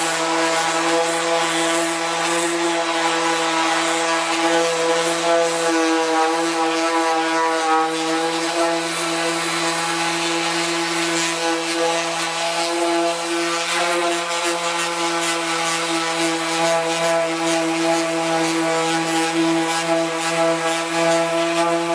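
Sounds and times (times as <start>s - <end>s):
power sander running: 0.0s - 21.9s.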